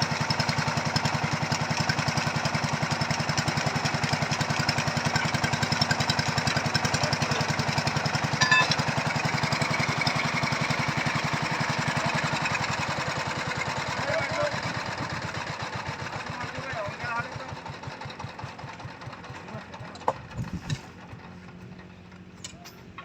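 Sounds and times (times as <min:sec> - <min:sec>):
small engine running: 0:00.0 - 0:23.0
metallic clink: 0:08.4 - 0:08.8.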